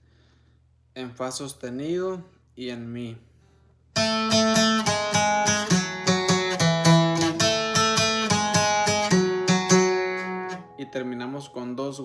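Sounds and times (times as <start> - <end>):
acoustic guitar picking: 4.0 - 11.8.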